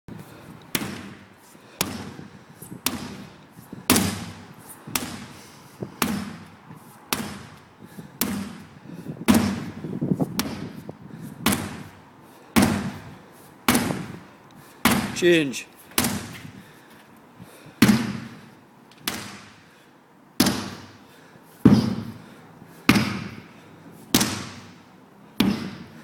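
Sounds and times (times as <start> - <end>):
sledgehammer thudding on tyre: 0.7 - 5.4, 6.0 - 12.0, 12.6 - 14.2, 14.8 - 15.3, 15.9 - 16.5, 17.8 - 18.4, 19.0 - 19.6, 20.4 - 21.0, 21.6 - 22.2, 22.9 - 23.5, 24.1 - 24.8, 25.4 - 26.0.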